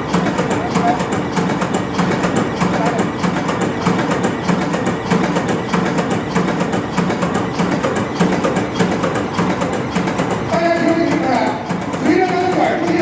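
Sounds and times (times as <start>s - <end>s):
diesel engine rhythmic clatter: 0.0s - 13.0s.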